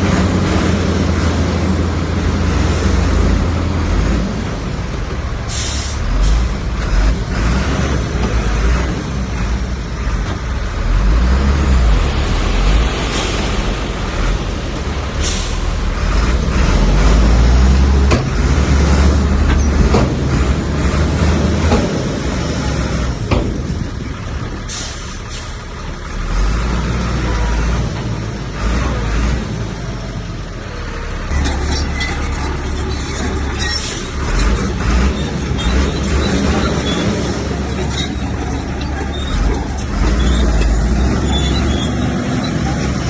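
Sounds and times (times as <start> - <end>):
bulldozer diesel engine rumbling: 0.0 - 43.0
knocks and clanks: 19.4 - 20.6, 21.4 - 22.3, 23.2 - 24.0.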